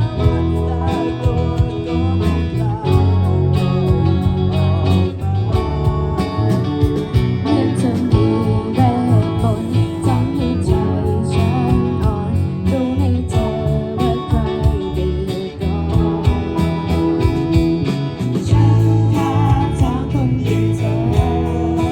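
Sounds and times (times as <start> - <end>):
band playing pop song: 0.0 - 21.9
drums beating: 0.2 - 4.7, 5.6 - 9.7, 16.0 - 21.9.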